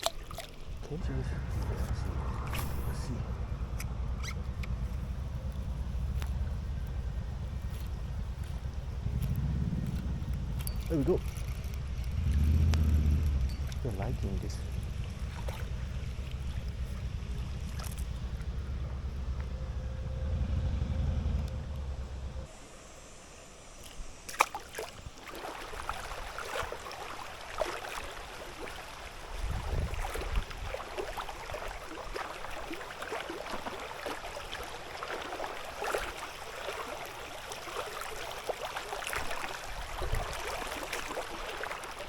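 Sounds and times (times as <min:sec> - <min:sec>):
river water trickling and gurgling: 0:00.0 - 0:42.0
wind rumble on microphone: 0:00.7 - 0:22.4, 0:29.1 - 0:32.2, 0:39.6 - 0:40.7.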